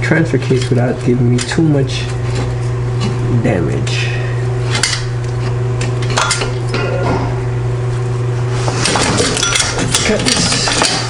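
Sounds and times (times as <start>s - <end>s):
steady low hum: 0.0s - 11.0s
metal pipes clinking: 5.9s - 7.0s, 8.8s - 11.0s.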